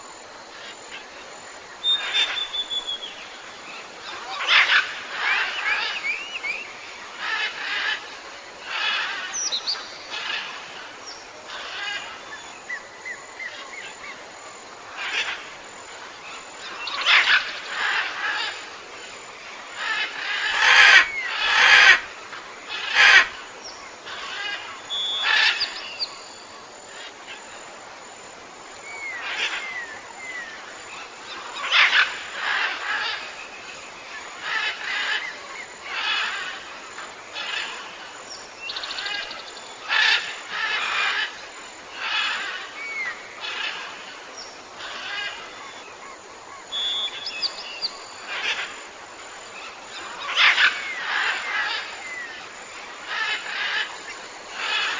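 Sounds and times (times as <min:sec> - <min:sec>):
bird whistled notes: 0:01.8 - 0:03.2, 0:24.9 - 0:25.4, 0:46.7 - 0:47.9
birds scratchy calls: 0:19.8 - 0:23.5, 0:42.0 - 0:42.8, 0:49.9 - 0:52.3, 0:53.0 - 0:54.9.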